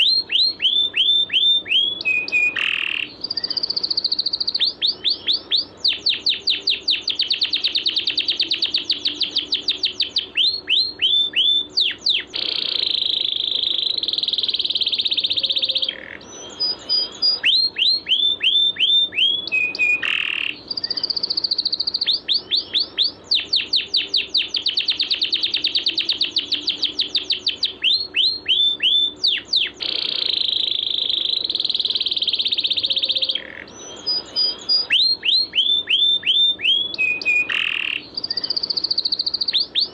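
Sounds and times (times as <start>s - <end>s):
songbird trilling: 0.0s - 39.9s.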